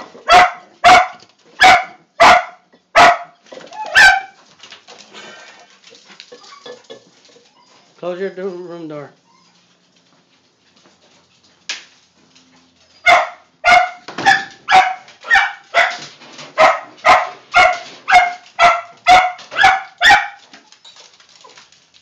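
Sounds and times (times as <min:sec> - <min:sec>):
dog barking: 0:00.2 - 0:04.4, 0:13.0 - 0:20.5.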